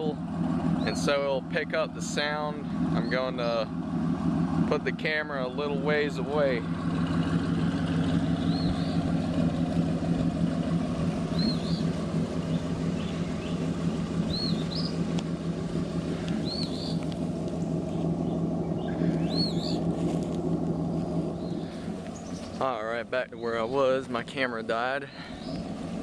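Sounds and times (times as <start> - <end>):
car engine idling: 0.0 - 26.0
bird chirping: 8.1 - 9.1, 11.3 - 15.1, 16.1 - 20.0, 20.8 - 22.8, 25.1 - 25.7.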